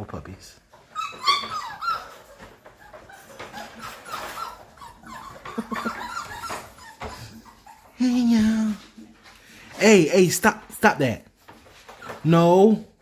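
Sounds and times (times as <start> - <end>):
puppies whimpering: 0.8 - 8.9, 11.8 - 12.6.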